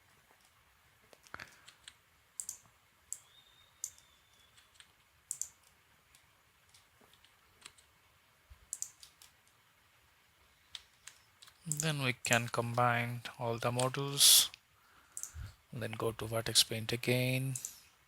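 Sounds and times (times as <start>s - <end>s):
mouse and keyboard clicking: 1.2s - 7.9s, 8.7s - 9.6s, 10.7s - 12.5s, 15.2s - 15.4s.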